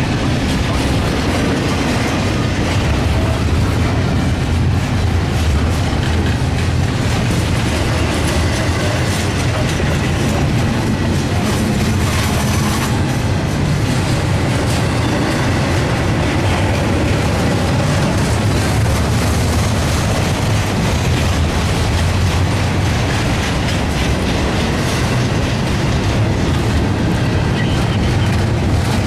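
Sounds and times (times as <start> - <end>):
steel wheels clattering on rails: 0.0 - 29.0.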